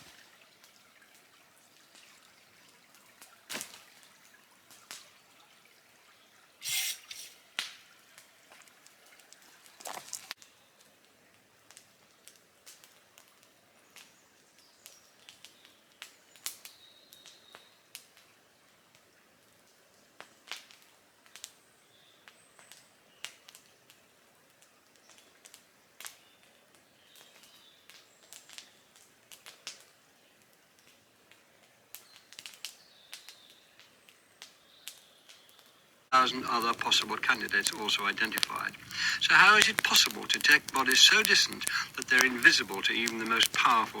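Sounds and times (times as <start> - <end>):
campfire crackling: 6.6 - 10.4, 36.1 - 44.0.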